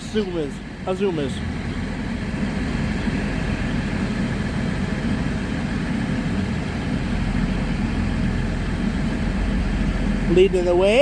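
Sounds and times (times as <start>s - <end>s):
train arriving with low rumble: 0.0s - 11.0s.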